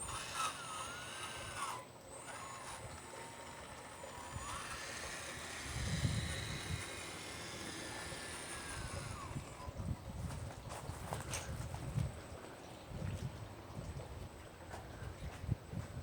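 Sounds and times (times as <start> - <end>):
electric motor whine: 0.0 - 10.5.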